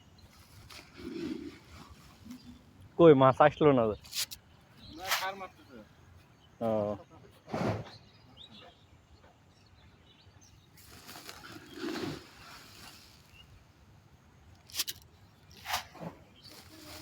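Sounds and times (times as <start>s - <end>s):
faint bird chirps: 3.4s - 13.6s.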